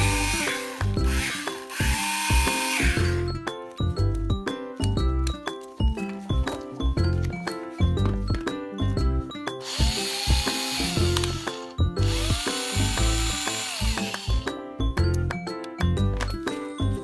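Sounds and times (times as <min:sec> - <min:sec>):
cordless power tool motor whining: 0:00.0 - 0:03.2, 0:09.6 - 0:14.5
background music with steady beat: 0:00.0 - 0:17.0.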